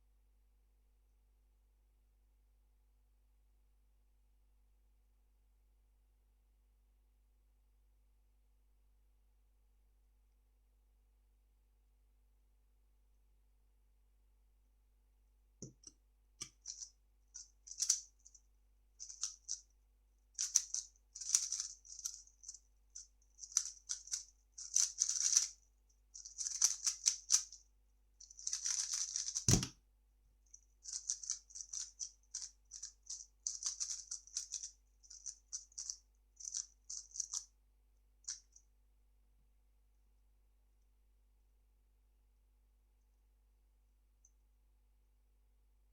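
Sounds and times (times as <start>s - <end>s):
plastic puzzle cube clicking: 20.4s - 22.2s, 23.4s - 25.5s, 26.2s - 27.6s, 28.4s - 29.7s, 30.9s - 37.4s.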